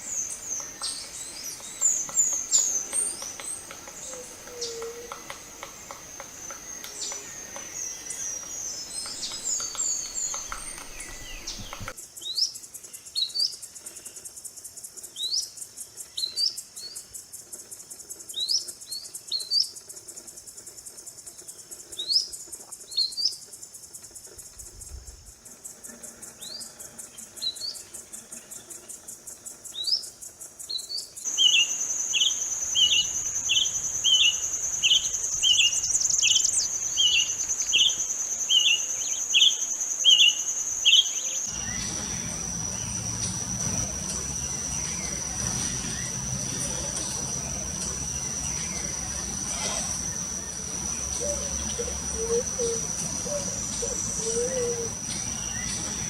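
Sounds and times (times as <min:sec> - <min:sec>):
bird giving rising chirps: 0:00.0 - 0:12.0, 0:31.3 - 0:55.9
bird trilling: 0:00.0 - 0:12.0, 0:31.3 - 0:41.9, 0:48.4 - 0:55.7
birds singing and calling: 0:00.0 - 0:13.6, 0:30.7 - 0:56.0
insect buzz: 0:00.0 - 0:56.0.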